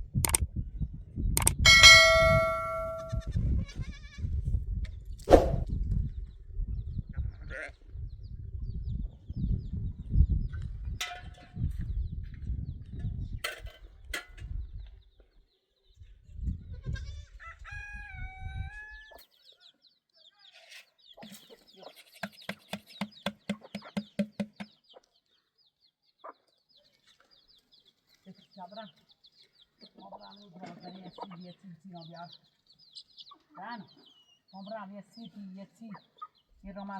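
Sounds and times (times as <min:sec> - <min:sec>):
small birds chirping: 0:18.9 - 0:36.9.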